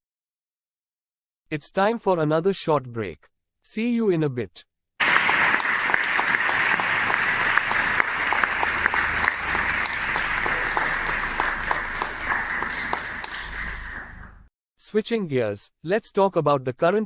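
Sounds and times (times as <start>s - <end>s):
audience applause: 5.0s - 14.4s.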